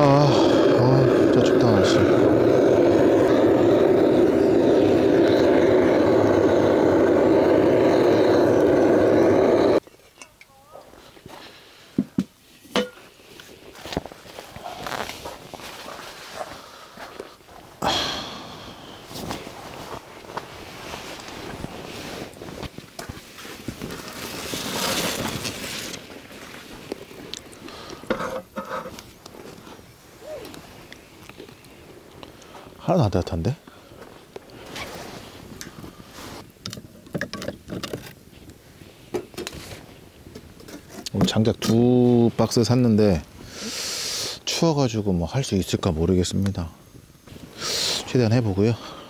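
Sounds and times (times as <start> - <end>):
gas torch burning: 0.0 - 9.8, 17.8 - 32.8
wood fire crackling: 0.0 - 12.0, 13.2 - 28.1, 28.8 - 43.8
tent rustling: 13.2 - 17.8, 19.1 - 27.6, 34.0 - 36.4
footsteps crunching on snow: 13.7 - 17.6.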